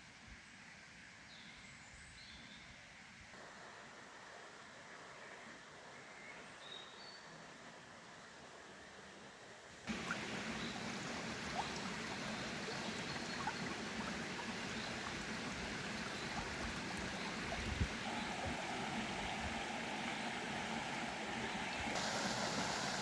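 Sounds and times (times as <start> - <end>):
faint chirps: 9.9 - 23.0
flowing water rushing: 9.9 - 23.0.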